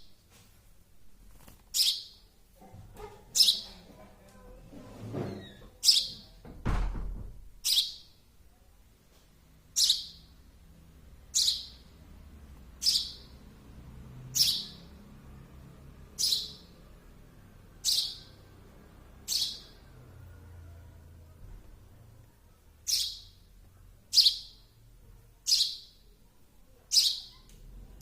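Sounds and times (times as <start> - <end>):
baby sparrow chirping: 1.7 - 2.3, 3.0 - 3.9, 5.3 - 6.4, 7.6 - 8.2, 9.7 - 10.4, 11.2 - 12.0, 12.7 - 15.1, 15.9 - 20.2, 22.7 - 24.8, 25.4 - 27.5.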